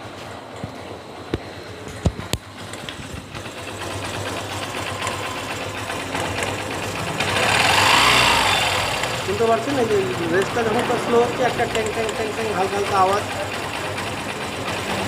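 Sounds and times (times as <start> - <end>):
motorcycle engine running: 0.0 - 15.0
metallic timing chain rattle: 3.4 - 15.0.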